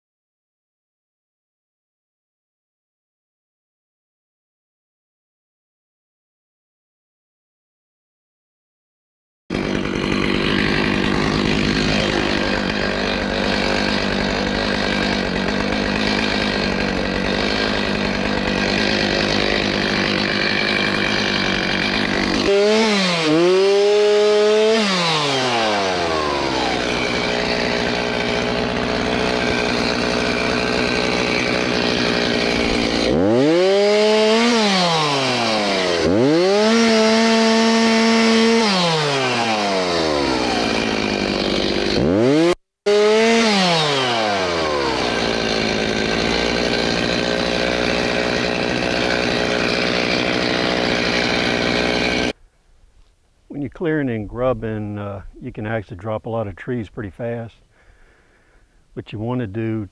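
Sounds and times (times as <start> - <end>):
chainsaw running and revving: 9.5 - 52.4.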